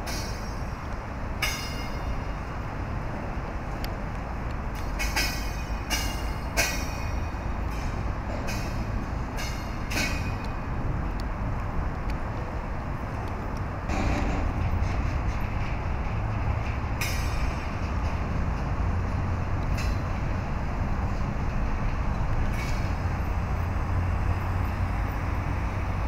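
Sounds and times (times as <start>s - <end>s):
freight train rumbling: 0.0s - 26.0s
metallic clanks: 4.8s - 10.5s, 13.9s - 18.7s.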